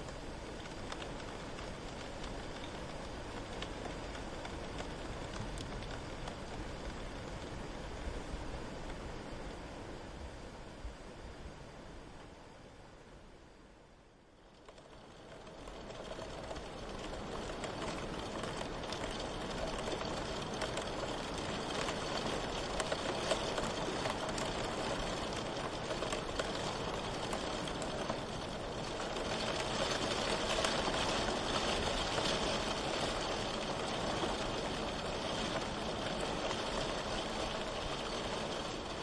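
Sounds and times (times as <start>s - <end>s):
rain pattering: 0.0s - 9.8s, 14.2s - 39.0s.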